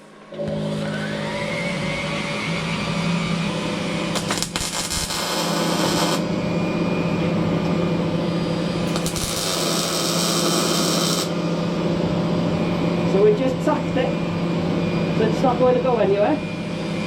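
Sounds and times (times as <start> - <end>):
extractor fan motor whine: 0.1 - 4.3, 5.5 - 17.0
welding arc crackling hiss: 4.1 - 6.3, 8.8 - 11.8.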